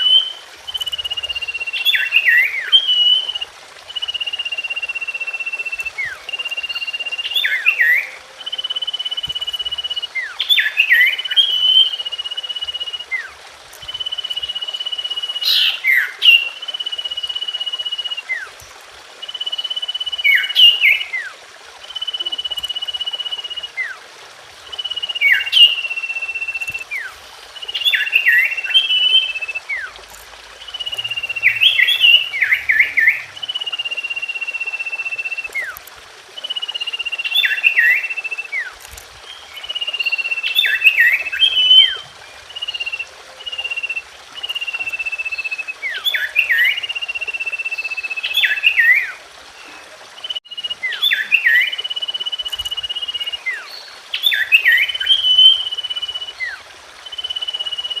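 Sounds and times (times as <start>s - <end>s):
bird song whistles and sharp notes: 27.7s - 30.0s, 36.4s - 58.0s.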